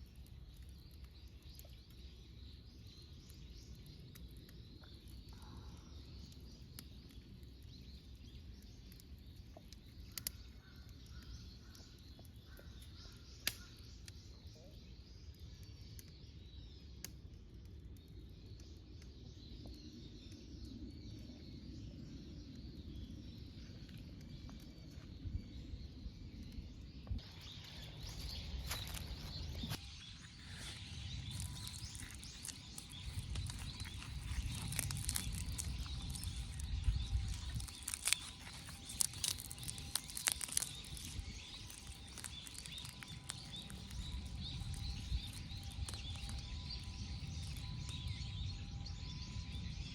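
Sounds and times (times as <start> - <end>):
wind rumble on microphone: 19.3 - 49.9
birds chirping: 25.4 - 49.7
sharp irregular clicks and crackles: 31.1 - 46.5.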